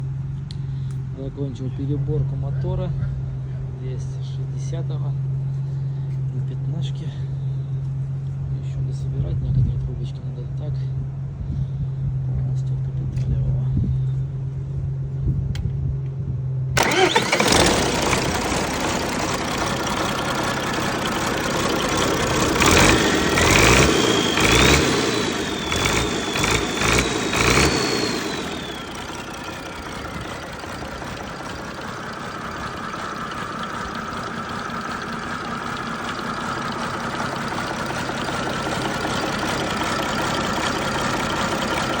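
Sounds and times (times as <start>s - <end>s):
low hum: 11.0s - 42.0s
high engine whine: 16.7s - 42.0s
diesel engine starting and revving: 16.8s - 42.0s.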